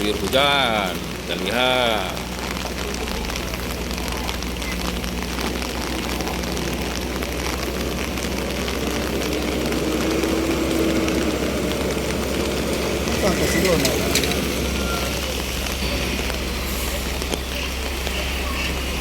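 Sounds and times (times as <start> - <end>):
heavy rain: 0.0 - 19.0
vehicle engine running: 0.0 - 19.0.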